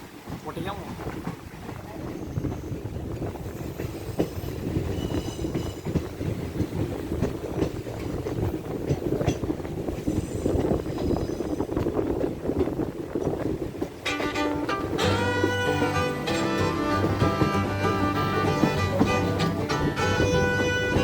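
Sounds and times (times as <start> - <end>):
train rumble and wheel clatter: 0.0 - 21.0
high-pitched wheel squeals: 3.6 - 6.0, 14.1 - 21.0.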